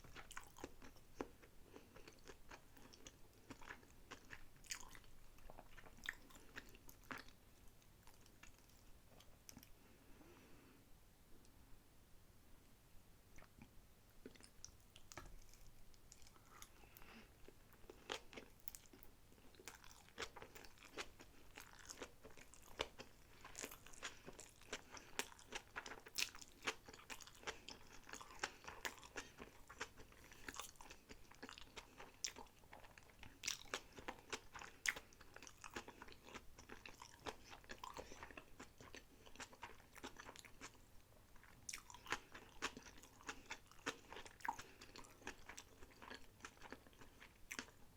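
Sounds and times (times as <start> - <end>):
close chewing of sushi: 0.0 - 10.4, 13.4 - 47.9.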